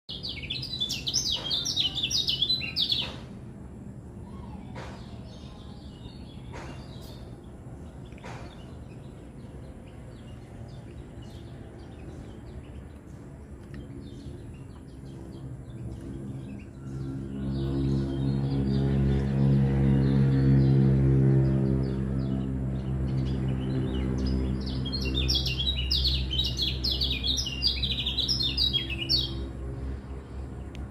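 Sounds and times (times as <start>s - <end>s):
bird twittering song: 0.1s - 3.4s, 4.3s - 30.8s
steady low hum: 0.1s - 30.9s.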